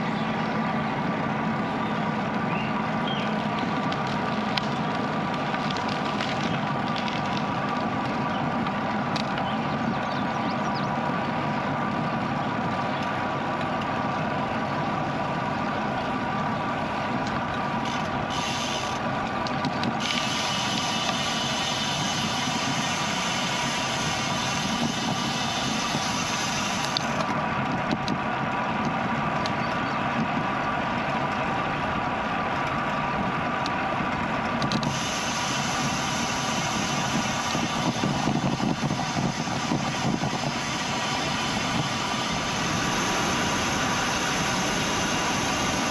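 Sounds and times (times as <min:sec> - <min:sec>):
wind and road noise: 0:00.0 - 0:45.9.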